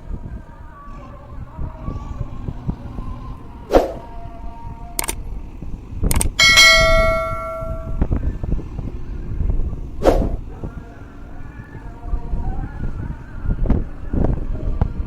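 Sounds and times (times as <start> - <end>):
metallic bell-like ring: 6.1 - 8.1
sharp knocks: 6.4 - 8.0.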